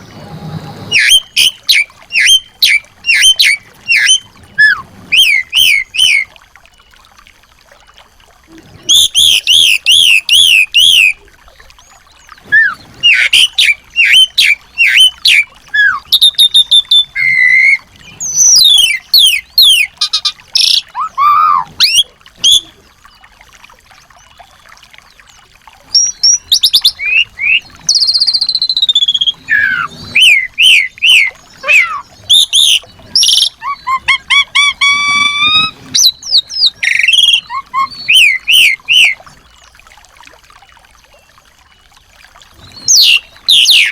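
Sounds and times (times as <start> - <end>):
songbirds singing and calling: 0.9 - 7.0, 8.9 - 39.9, 40.6 - 43.9.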